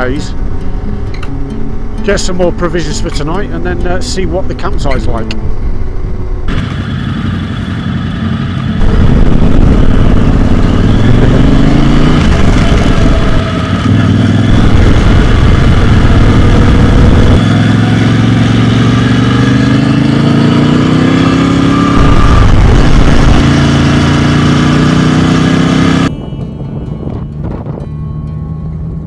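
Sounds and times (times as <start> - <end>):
motorcycle engine accelerating: 0.0 - 26.2.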